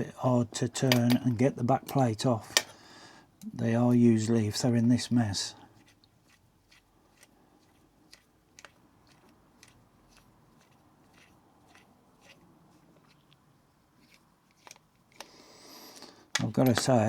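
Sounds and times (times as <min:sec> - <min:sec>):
hand tool clicks and taps: 0:00.9 - 0:01.3, 0:01.9 - 0:02.7.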